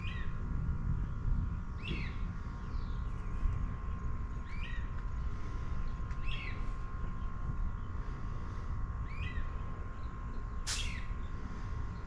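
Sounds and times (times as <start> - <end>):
bird calling at night: 0.0 - 0.4, 4.4 - 5.0, 6.2 - 6.6, 9.0 - 9.7, 10.7 - 11.3.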